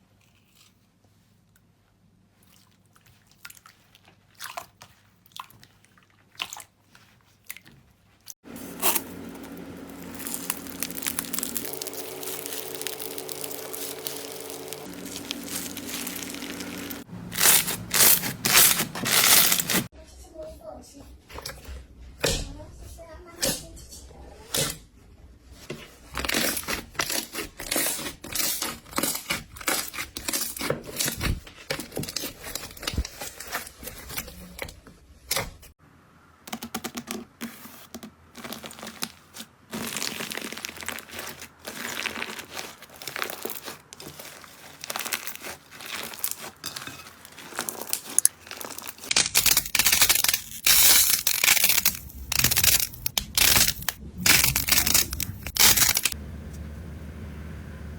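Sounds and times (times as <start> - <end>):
slime crackling and popping: 8.8 - 19.9, 38.4 - 56.2.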